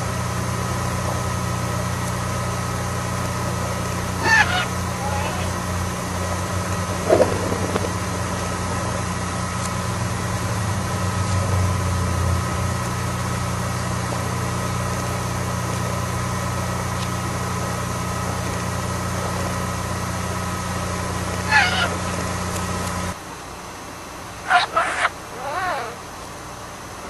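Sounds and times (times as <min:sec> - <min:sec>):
low mechanical hum: 0:00.0 - 0:27.0
budgerigar chirp: 0:04.2 - 0:05.6, 0:21.4 - 0:22.0, 0:24.4 - 0:26.0.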